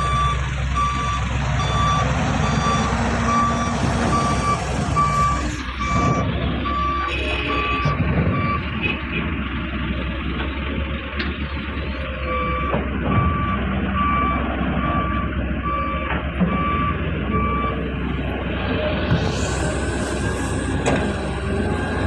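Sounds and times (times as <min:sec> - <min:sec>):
reversing alarm beeping: 0:00.0 - 0:08.7, 0:12.2 - 0:17.8, 0:19.4 - 0:22.0
diesel engines running: 0:00.0 - 0:22.0.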